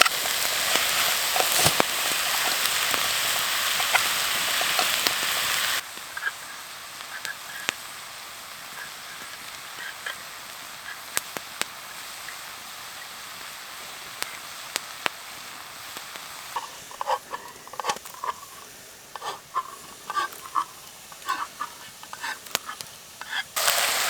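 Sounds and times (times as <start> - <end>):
campfire crackling: 0.0 - 24.0
fire pops: 0.0 - 24.0.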